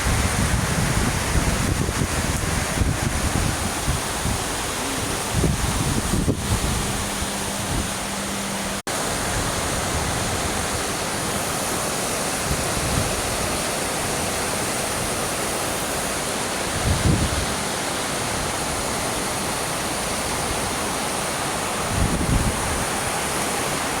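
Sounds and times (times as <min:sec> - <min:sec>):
wind rumble on microphone: 0:00.0 - 0:11.2, 0:12.3 - 0:15.3, 0:16.6 - 0:19.0, 0:21.6 - 0:24.0
heavy rain hissing: 0:00.0 - 0:24.0.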